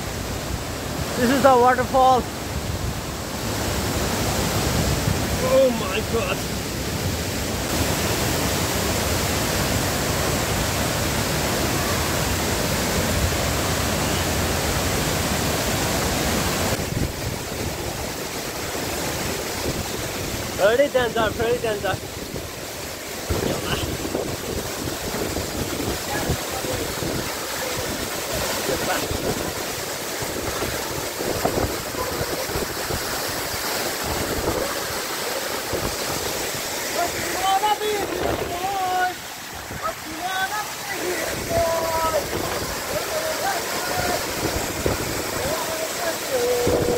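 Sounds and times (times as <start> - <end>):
waterfall rushing: 0.0 - 46.9
wind buffeting microphone: 22.1 - 36.7, 44.0 - 45.6.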